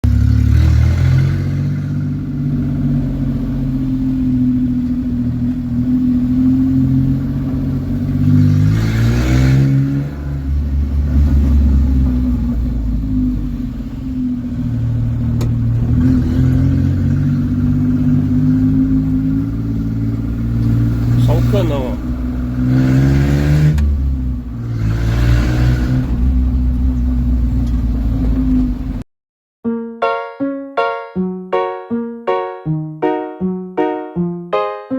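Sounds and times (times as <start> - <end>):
engine revving: 0.0 - 29.0.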